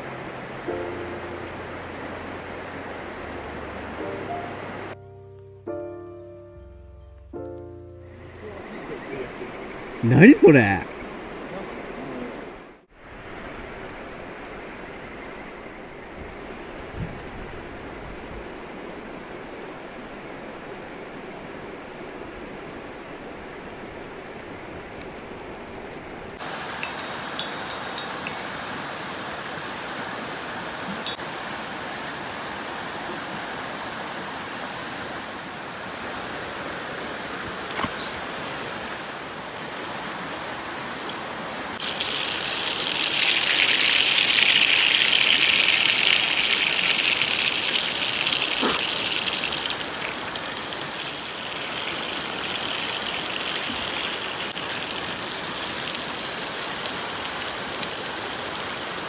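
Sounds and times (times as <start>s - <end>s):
oil sizzling in frying pan: 26.4s - 29.9s, 41.8s - 59.0s.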